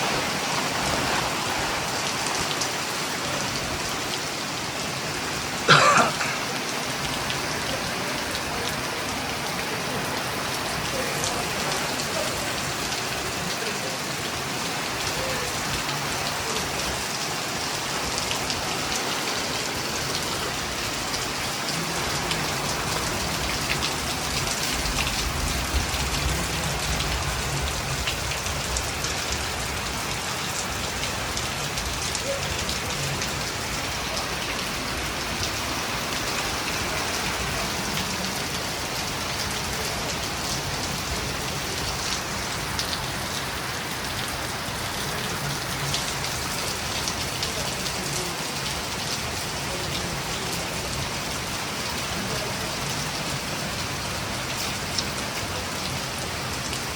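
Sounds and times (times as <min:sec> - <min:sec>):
rain pattering on surfaces: 0:00.0 - 0:56.9.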